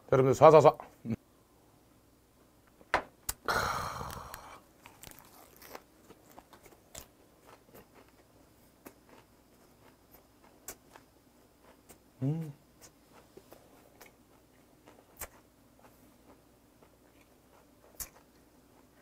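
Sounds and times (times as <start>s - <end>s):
lettuce wrap crunch: 4.0s - 11.8s
chewing with mouth clicks: 4.8s - 12.0s, 12.8s - 19.0s.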